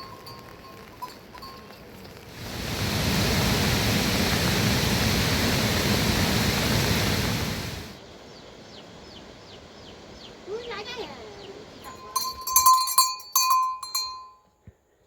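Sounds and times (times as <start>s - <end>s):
rushing falling water: 2.2s - 8.0s, 9.3s - 12.0s.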